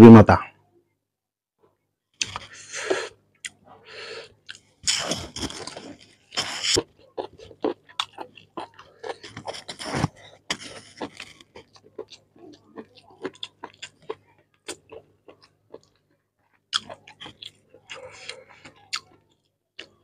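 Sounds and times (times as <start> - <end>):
chewing and crunching bone: 4.2 - 20.0
wet mouth sounds: 4.4 - 14.8.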